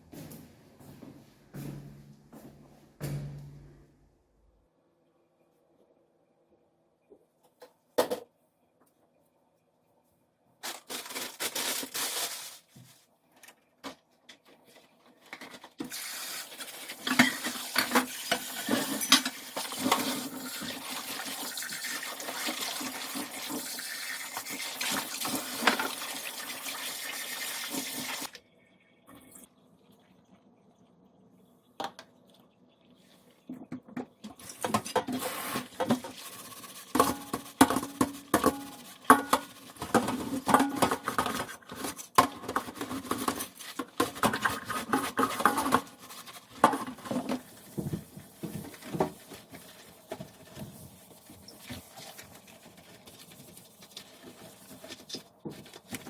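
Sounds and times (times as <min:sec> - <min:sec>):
water running from tap: 0:15.9 - 0:28.4
dishes and utensils clattering: 0:17.0 - 0:20.7, 0:36.9 - 0:49.2.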